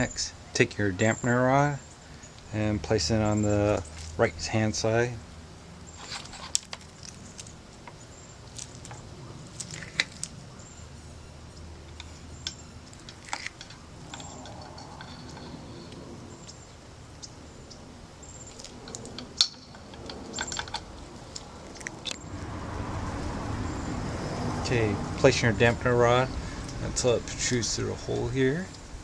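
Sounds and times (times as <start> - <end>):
metal parts clicking and tapping: 11.9 - 16.6, 18.4 - 22.2.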